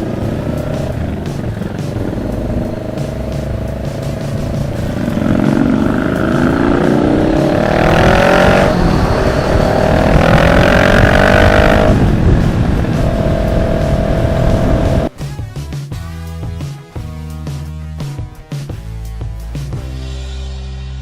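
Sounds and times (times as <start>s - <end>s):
wind rush on microphone: 0.0s - 15.1s
motorcycle engine accelerating: 0.0s - 15.2s.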